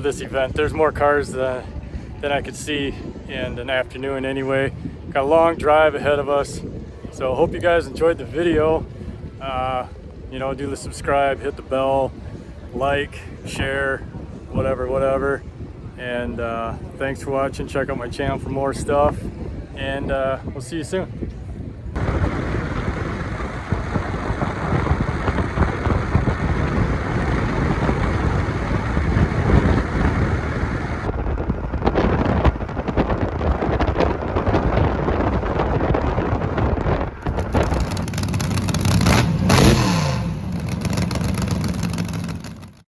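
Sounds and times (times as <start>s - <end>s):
car engines revving: 22.0s - 31.1s, 37.4s - 42.7s.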